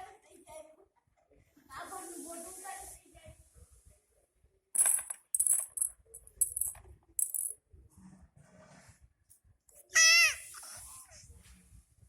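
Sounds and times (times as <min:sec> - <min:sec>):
small object rattling: 0:04.8 - 0:07.6.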